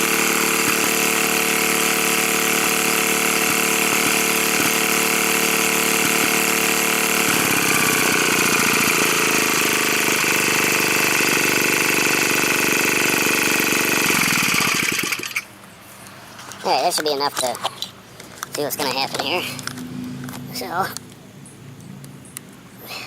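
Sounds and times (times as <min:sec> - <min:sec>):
small engine running: 0:00.0 - 0:15.5.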